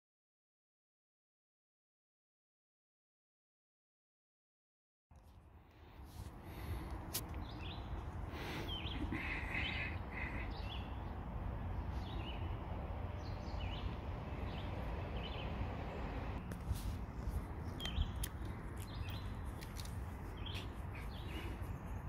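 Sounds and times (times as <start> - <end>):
birds chirping: 5.3 - 22.0.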